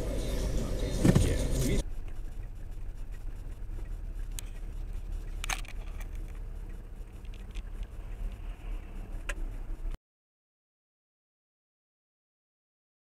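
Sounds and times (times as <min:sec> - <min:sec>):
car rumble while driving: 0:00.0 - 0:10.0
faint clicks: 0:02.0 - 0:09.5.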